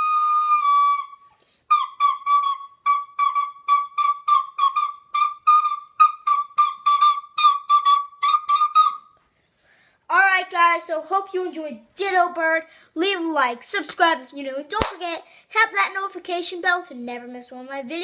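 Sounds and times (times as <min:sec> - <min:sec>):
recorder playing: 0:00.0 - 0:09.1.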